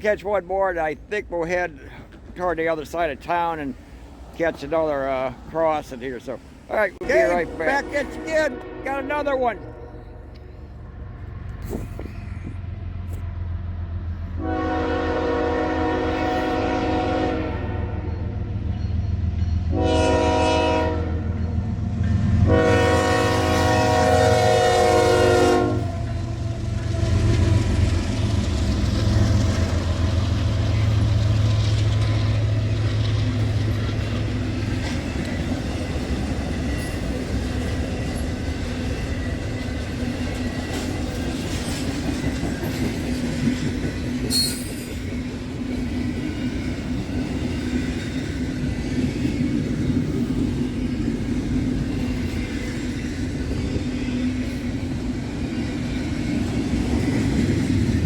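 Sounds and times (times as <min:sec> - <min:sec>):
train cars rumbling by: 0:00.0 - 0:58.0
locomotive air horn blasts: 0:07.1 - 0:10.2, 0:14.4 - 0:18.1, 0:19.7 - 0:21.3, 0:22.4 - 0:27.4
wheels clacking over rail joints: 0:26.0 - 0:58.0.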